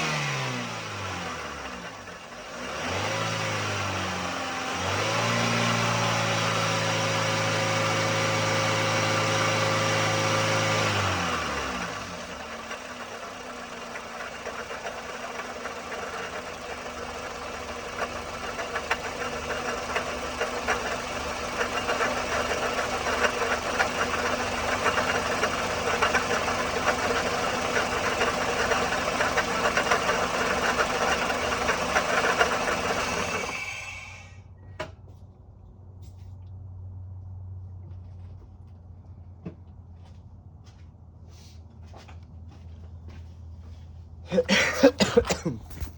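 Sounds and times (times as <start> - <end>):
engine idling with ticking rattle: 0.0 - 2.9, 10.3 - 35.2.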